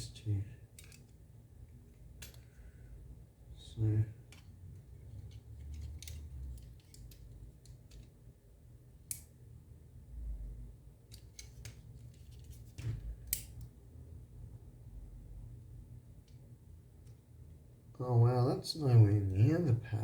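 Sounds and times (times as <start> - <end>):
plastic parts clicking: 0.8 - 1.2, 4.3 - 8.1.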